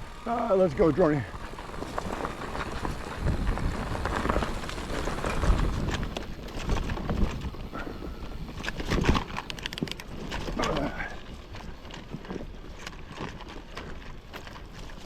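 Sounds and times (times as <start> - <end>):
bike knocking and rattling: 0.0 - 15.0
wind rumble on microphone: 0.0 - 15.0.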